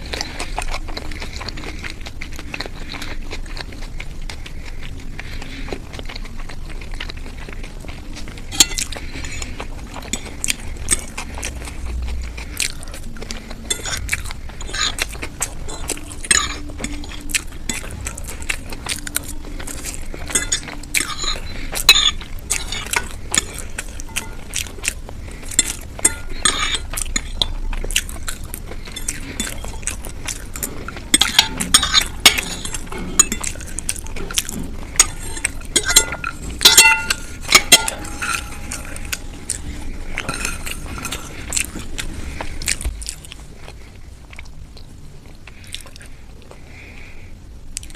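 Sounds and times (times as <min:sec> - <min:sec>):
cutlery clinking and scraping on plate: 0:08.4 - 0:11.2, 0:13.7 - 0:24.7, 0:25.4 - 0:28.1, 0:28.8 - 0:41.9.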